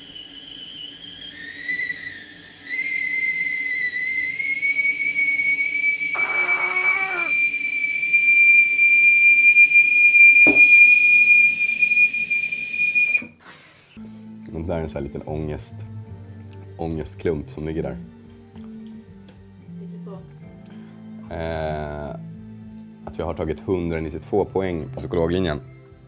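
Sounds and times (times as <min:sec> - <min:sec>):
kettle whistling: 0:00.0 - 0:13.4.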